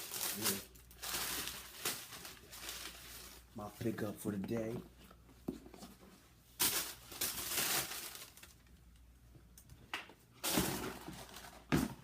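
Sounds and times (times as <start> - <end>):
packaging rustling: 0.0 - 3.5, 6.6 - 8.6.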